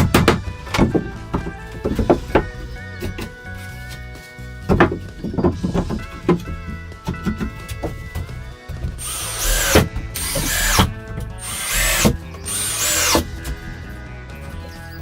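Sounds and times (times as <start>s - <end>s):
power drill bursts: 9.0s - 13.3s.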